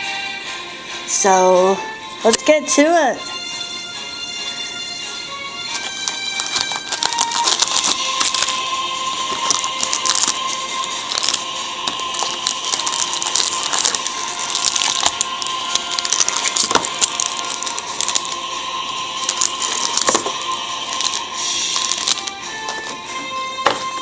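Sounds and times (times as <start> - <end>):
packaging crackling and clicking: 5.7 - 23.0.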